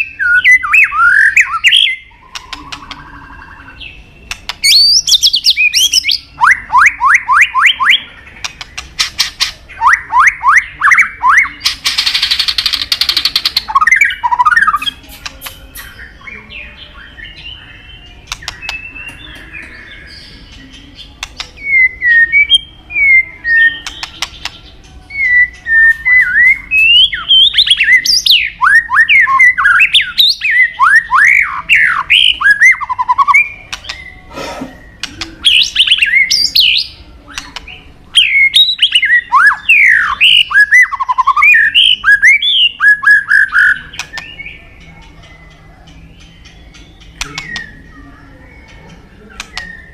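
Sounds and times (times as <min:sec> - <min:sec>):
bird singing whistled notes: 0:00.0 - 0:49.9
soft bird chirps: 0:00.0 - 0:49.9.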